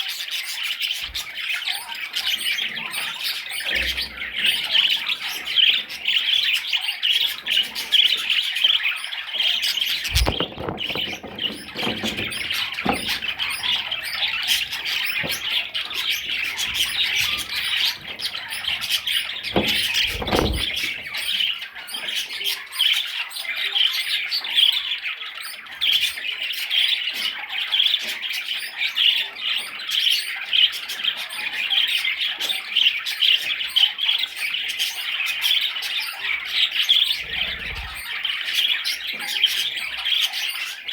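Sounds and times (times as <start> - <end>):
dull thumps: 10.0 - 21.1.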